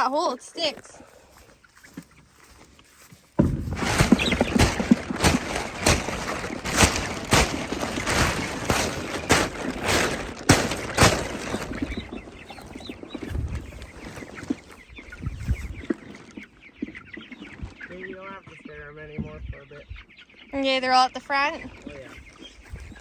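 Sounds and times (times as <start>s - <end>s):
chickens clucking: 0.0s - 23.0s
rustling scraping noise: 0.6s - 17.8s
sharp knocks: 3.4s - 12.2s.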